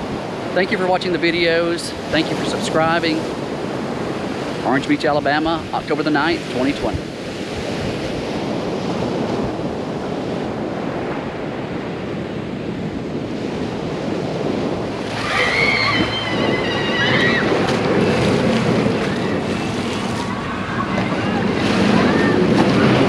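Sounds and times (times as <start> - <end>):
wind buffeting microphone: 0.0 - 23.0
surf breaking: 13.5 - 23.0
high wavering cry: 15.0 - 18.2.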